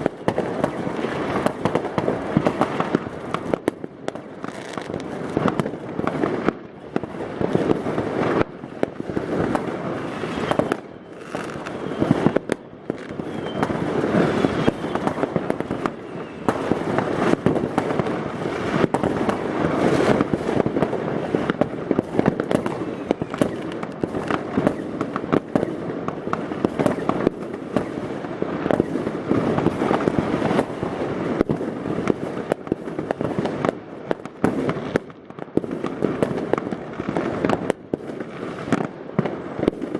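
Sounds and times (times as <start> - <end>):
fireworks bangs and crackling: 0.0 - 39.9
faint rising firework whistle: 9.9 - 17.4, 22.6 - 25.8.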